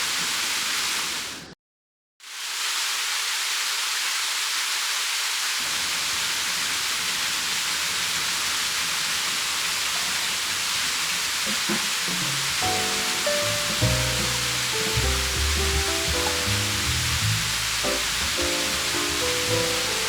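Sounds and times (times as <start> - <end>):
mountain stream rushing: 5.6 - 20.0.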